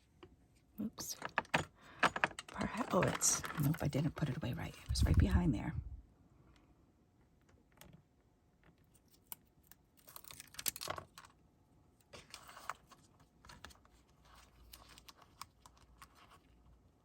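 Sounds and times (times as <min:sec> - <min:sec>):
paper rustling: 0:12.1 - 0:16.6.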